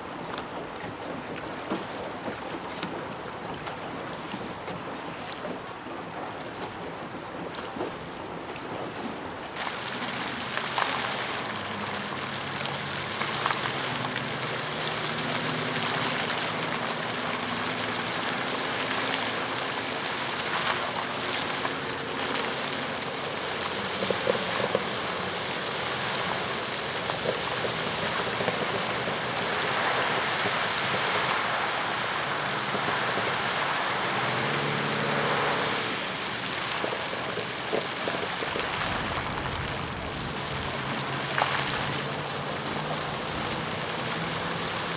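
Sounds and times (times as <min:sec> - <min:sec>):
fountain water splashing: 0:09.4 - 0:44.9.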